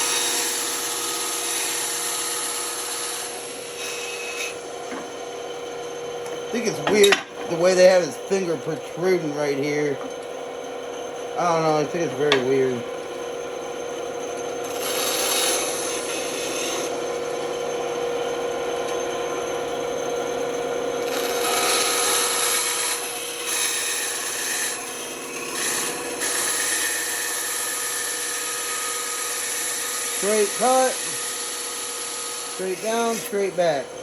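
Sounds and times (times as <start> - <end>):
saw blade cutting wood: 0.0 - 5.2, 6.4 - 10.1, 11.4 - 12.8, 14.6 - 17.5, 21.0 - 34.0
band saw humming: 0.0 - 34.0.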